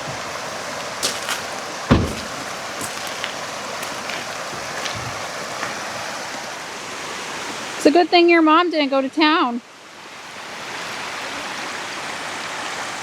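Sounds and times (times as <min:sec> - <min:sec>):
floodwater rushing: 0:00.0 - 0:07.8, 0:10.0 - 0:13.0
low thump: 0:01.9 - 0:02.4.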